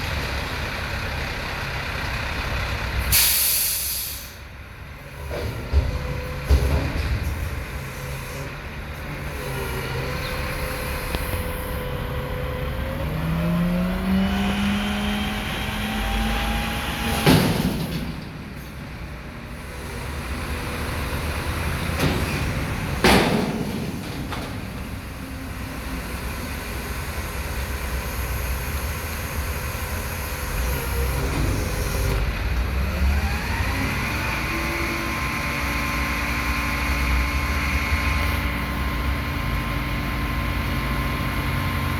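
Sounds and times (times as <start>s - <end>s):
dumpster banging: 5.2s - 8.1s, 14.8s - 25.8s
garbage truck engine revving: 5.2s - 41.9s.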